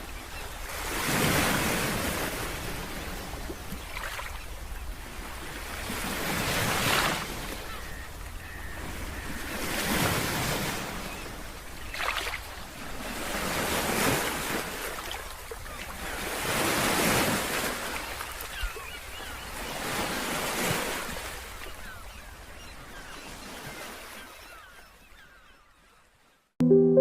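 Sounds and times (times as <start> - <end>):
sea waves breaking: 0.6 - 22.2.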